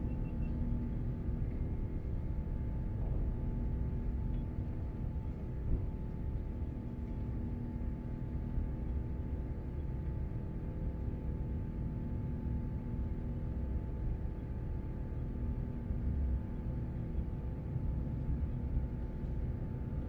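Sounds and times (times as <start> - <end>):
aircraft cabin rumble: 0.0 - 11.8, 16.9 - 20.0.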